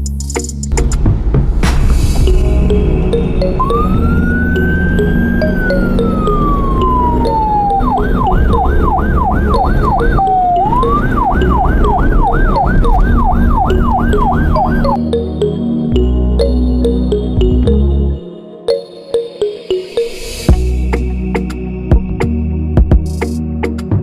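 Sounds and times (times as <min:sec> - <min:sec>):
background music: 0:00.0 - 0:24.0
emergency vehicle siren: 0:02.3 - 0:15.0.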